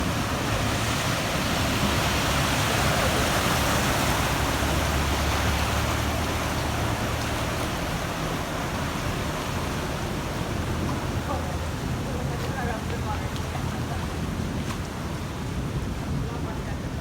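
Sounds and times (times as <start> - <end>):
heavy rain: 0.0 - 17.0
low engine rumble: 0.0 - 17.0
traffic on wet road: 0.0 - 17.0.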